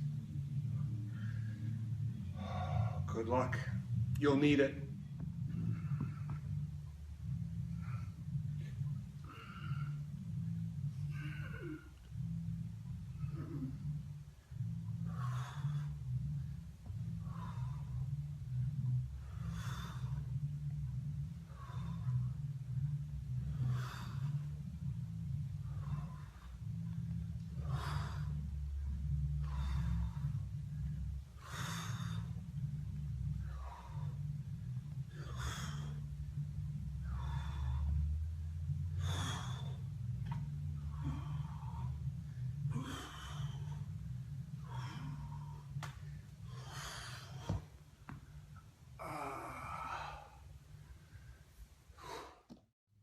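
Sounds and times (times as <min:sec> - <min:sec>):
person breathing hard: 0:00.0 - 0:04.1, 0:05.1 - 0:52.6
steady low hum: 0:00.0 - 0:53.0
person exhaling heavily: 0:49.0 - 0:50.4.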